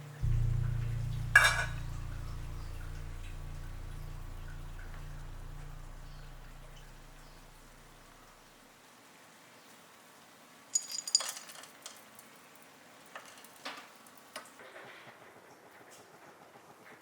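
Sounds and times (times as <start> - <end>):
kitchenware clinking: 10.8 - 11.7.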